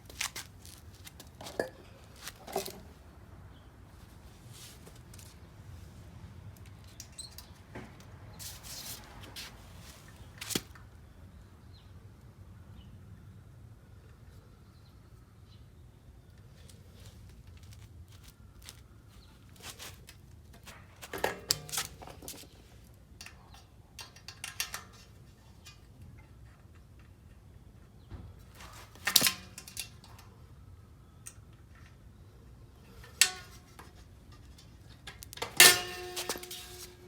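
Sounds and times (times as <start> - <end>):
metallic clanks: 32.9 - 37.0.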